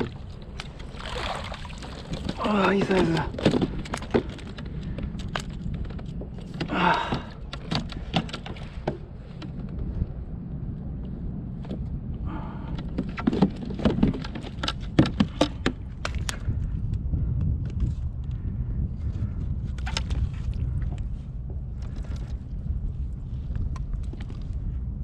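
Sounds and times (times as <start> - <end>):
fishing gear clicks and rattles: 0.0 - 9.9, 12.7 - 16.6, 19.7 - 21.0
steady low rumble: 0.0 - 25.0.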